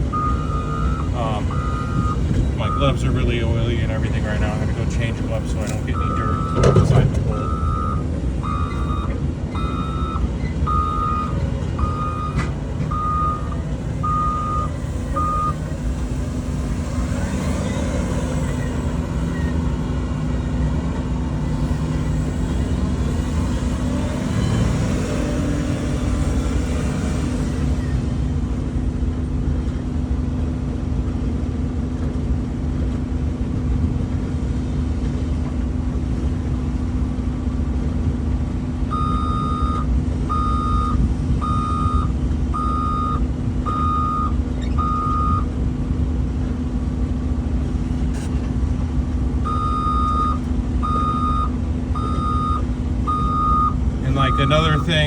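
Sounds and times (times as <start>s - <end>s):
machine engine rumble: 0.0s - 55.0s
backup alarm beeping: 0.1s - 3.1s, 5.8s - 15.6s, 38.9s - 45.4s, 49.4s - 55.0s.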